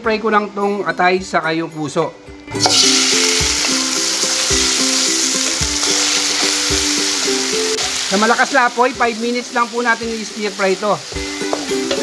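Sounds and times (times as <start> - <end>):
meat sizzling in hot oil: 2.6 - 12.0.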